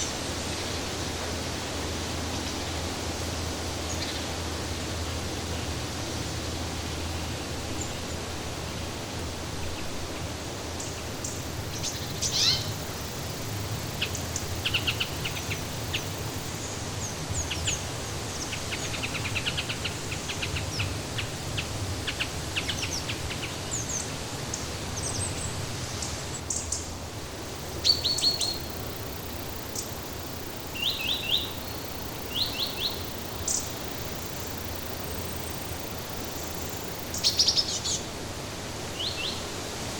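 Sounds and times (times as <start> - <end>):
steady background hiss: 0.0 - 39.9
songbirds chirping: 9.7 - 38.2.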